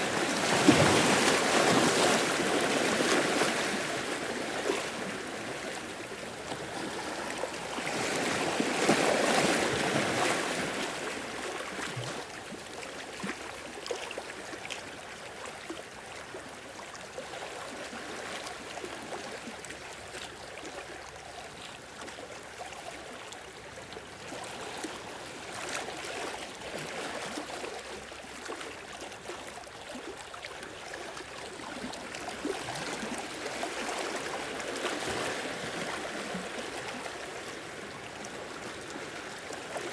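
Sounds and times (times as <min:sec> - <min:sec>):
sea waves washing on shore: 0:00.0 - 0:12.4.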